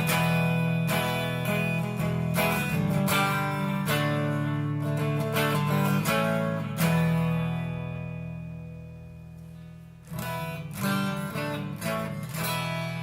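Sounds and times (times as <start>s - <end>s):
electric guitar strummed chords: 0.0s - 13.0s.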